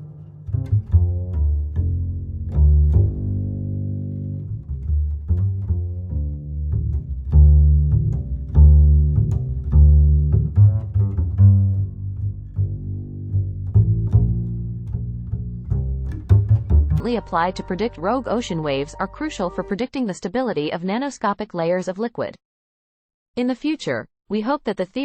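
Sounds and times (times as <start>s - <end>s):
low strings background music: 0.0s - 19.8s
plucked double bass and cello: 0.0s - 19.8s.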